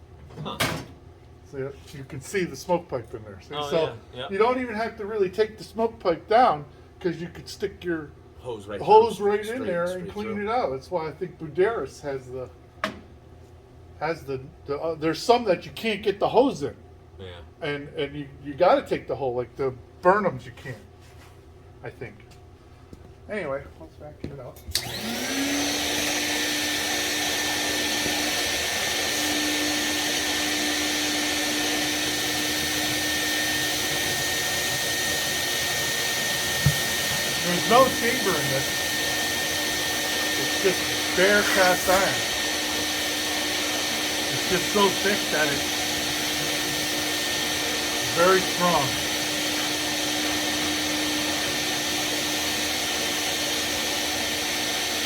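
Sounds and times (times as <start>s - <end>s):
vacuum cleaner whining: 3.4s - 5.8s, 24.7s - 55.0s.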